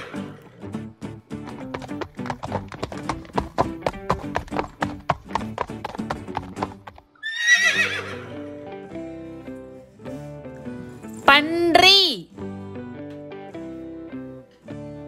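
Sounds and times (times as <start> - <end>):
horse whinnying: 0.0 - 0.7, 7.2 - 8.5
horse hooves clip-clopping: 1.1 - 7.2.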